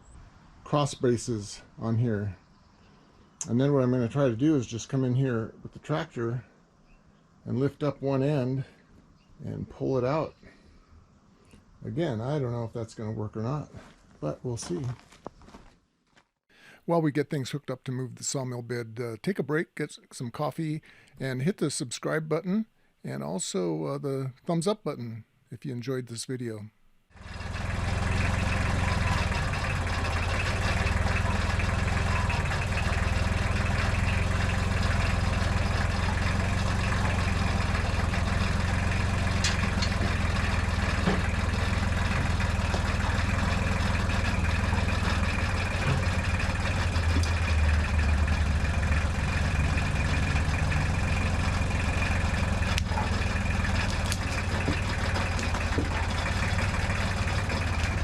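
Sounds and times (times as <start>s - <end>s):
tractor engine running: 27.1s - 58.0s.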